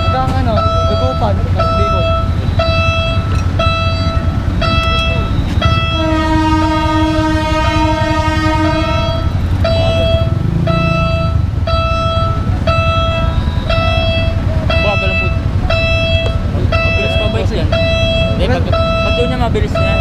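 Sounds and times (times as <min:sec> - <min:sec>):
electronic warning signal beeping: 0:00.0 - 0:20.0
steady low rumble: 0:00.0 - 0:20.0
train horn chord: 0:02.1 - 0:11.4.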